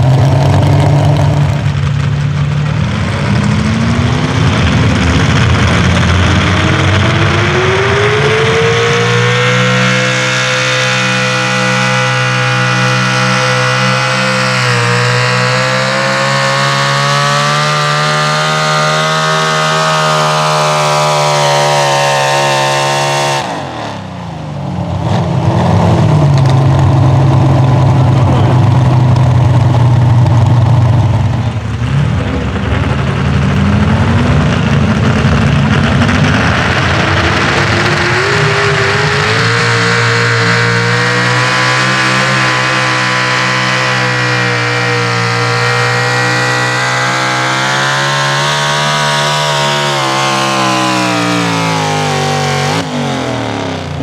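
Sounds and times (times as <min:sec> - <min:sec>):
truck engine at high revs: 0:00.0 - 0:54.0.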